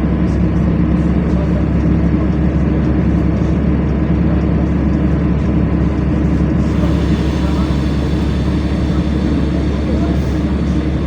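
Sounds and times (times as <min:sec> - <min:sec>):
bus engine drone: 0:00.0 - 0:11.0
road noise: 0:00.0 - 0:11.0.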